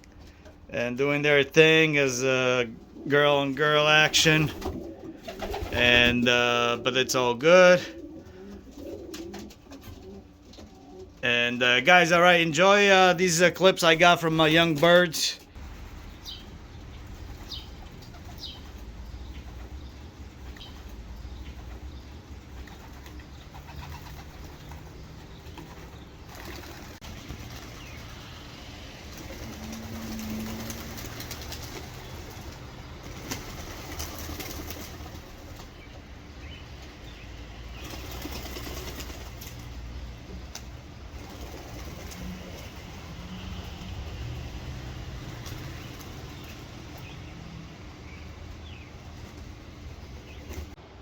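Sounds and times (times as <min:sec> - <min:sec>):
pigeons flapping wings: 0:03.8 - 0:06.8, 0:07.8 - 0:11.2, 0:14.1 - 0:50.8
pigeon cooing: 0:07.8 - 0:11.2, 0:29.1 - 0:32.5.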